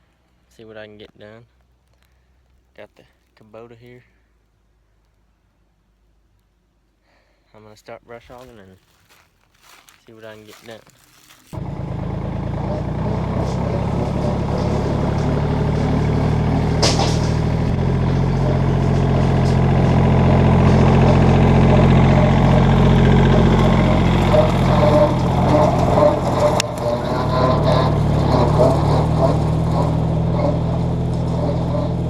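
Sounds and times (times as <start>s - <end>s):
tractor diesel engine running: 8.2s - 32.0s.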